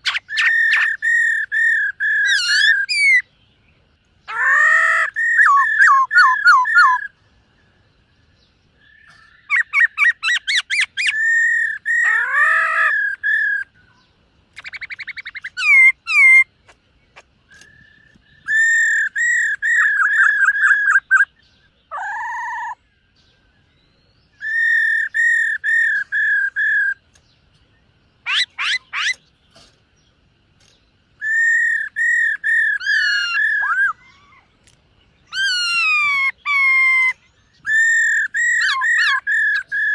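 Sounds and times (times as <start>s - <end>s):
bird singing whistled phrases: 0.0s - 3.3s, 4.3s - 7.1s, 8.8s - 14.0s, 14.6s - 16.5s, 17.5s - 22.9s, 23.6s - 27.0s, 31.2s - 34.4s, 35.2s - 39.9s.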